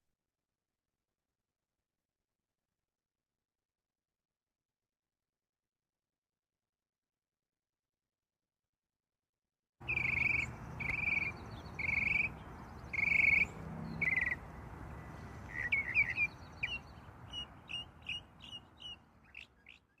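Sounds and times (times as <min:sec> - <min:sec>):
bird drawn-out notes: 0:09.8 - 0:19.8
quick short bird chirps: 0:09.8 - 0:20.0.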